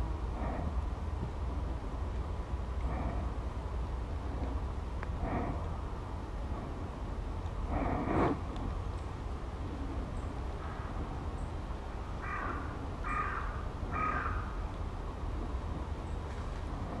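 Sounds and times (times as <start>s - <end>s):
low rumble: 0.0s - 13.1s
wild bird calls: 2.8s - 3.4s, 12.2s - 14.6s.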